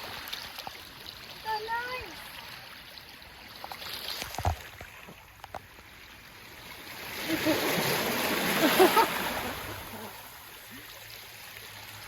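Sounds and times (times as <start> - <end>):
sea water washing among rocks: 6.6 - 10.7.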